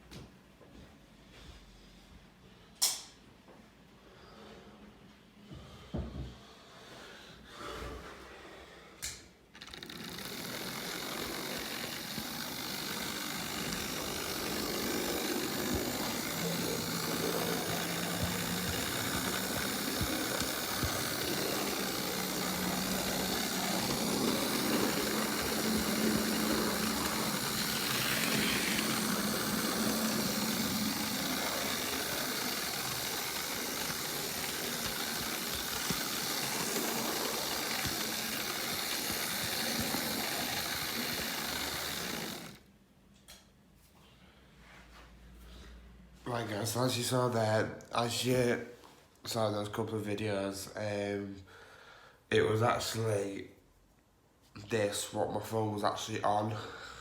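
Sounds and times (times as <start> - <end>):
model train running on track: 9.6 - 42.6.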